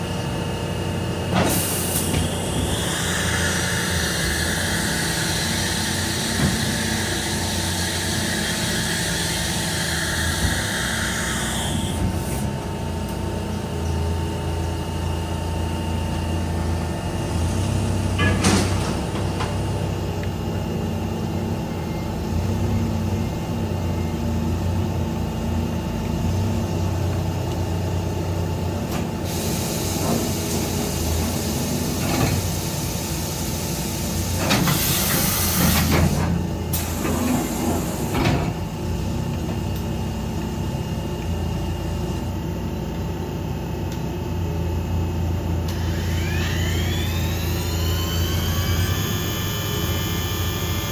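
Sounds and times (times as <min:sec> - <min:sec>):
machine whine: 0:00.0 - 0:20.2, 0:44.8 - 0:50.9
hissing bursts: 0:01.5 - 0:12.0, 0:45.7 - 0:50.9
machine hum: 0:45.6 - 0:50.9.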